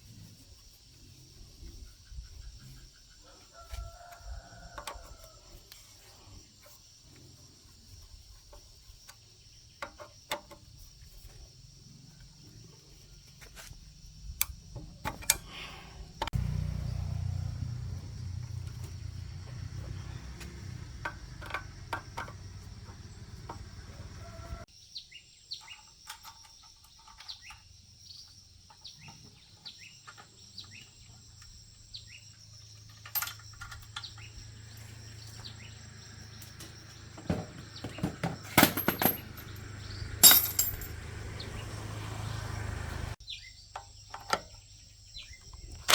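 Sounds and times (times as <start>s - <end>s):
birds chirping: 15.4s - 25.9s, 27.0s - 45.9s
hand tools clicking and clinking: 32.8s - 34.2s, 38.0s - 41.0s.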